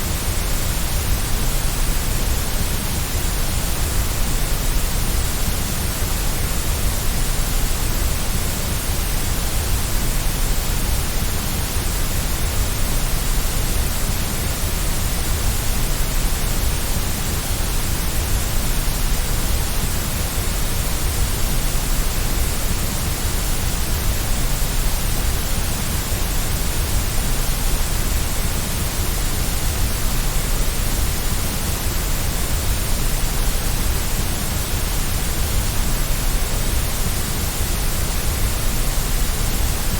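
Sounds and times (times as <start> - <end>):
steady white noise: 0.0 - 39.9.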